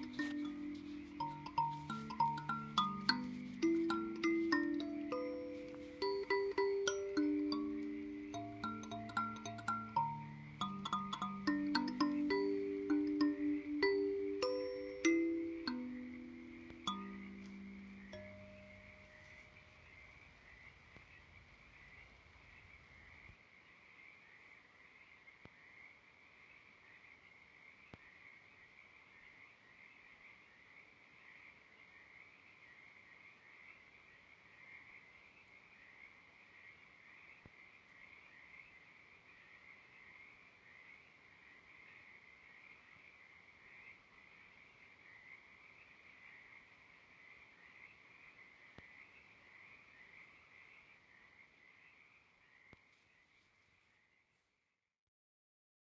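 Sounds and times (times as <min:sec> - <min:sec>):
high-pitched animal chorus: 0:00.0 - 0:19.7.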